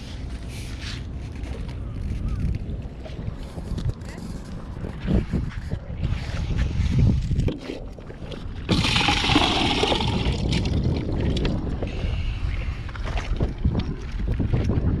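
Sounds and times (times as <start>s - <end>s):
wind buffeting microphone: 1.6s - 15.0s.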